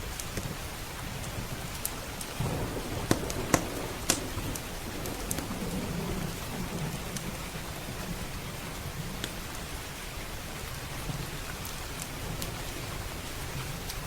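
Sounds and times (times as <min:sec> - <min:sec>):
heavy rain: 0:00.0 - 0:14.0
wood fire crackling: 0:00.2 - 0:14.0
distant thunder rumbling: 0:01.4 - 0:11.3.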